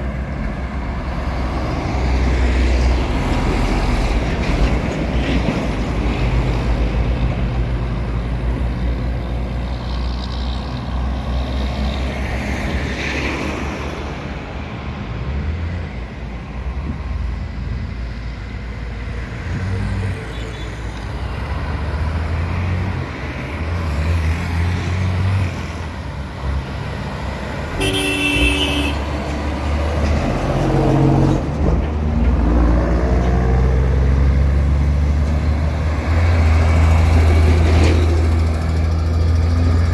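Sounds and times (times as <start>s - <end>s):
truck horn blast: 27.7s - 29.1s.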